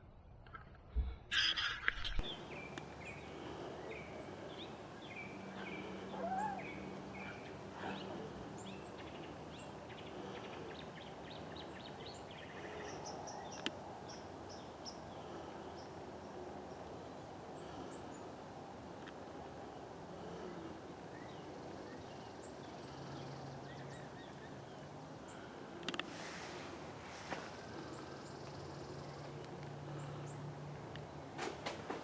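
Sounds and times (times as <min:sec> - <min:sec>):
steady outdoor hiss: 0:01.2 - 0:32.0
birds chirping: 0:01.3 - 0:18.5, 0:27.2 - 0:31.3.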